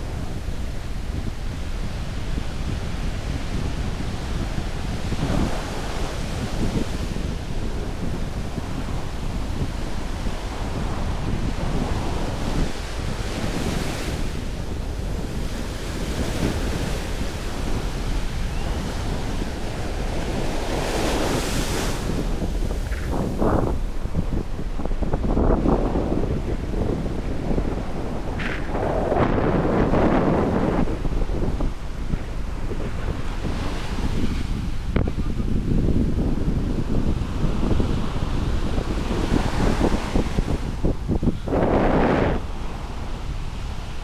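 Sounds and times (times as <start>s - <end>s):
ocean surf breaking: 0.0s - 44.0s
wind buffeting microphone: 0.0s - 44.0s.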